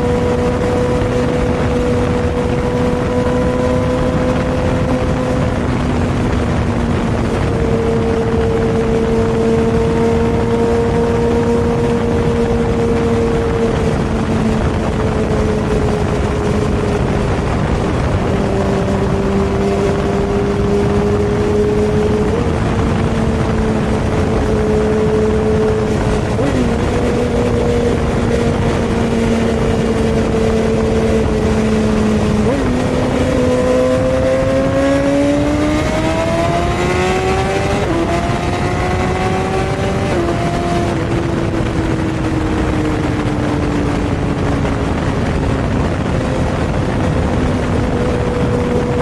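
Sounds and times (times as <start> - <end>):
motorcycle engine cruising: 0.0 - 49.0
rushing wind: 0.0 - 49.0.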